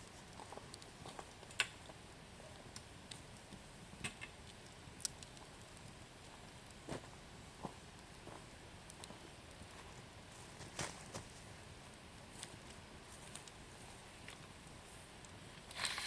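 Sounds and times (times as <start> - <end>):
bonfire crackling: 0.0 - 16.0
fire hissing: 11.3 - 16.0.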